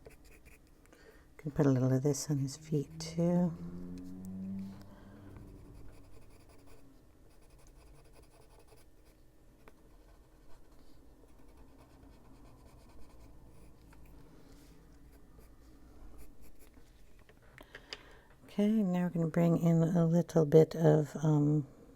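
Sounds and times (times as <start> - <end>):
pencil scratching on paper: 0.0 - 0.7, 5.5 - 13.8.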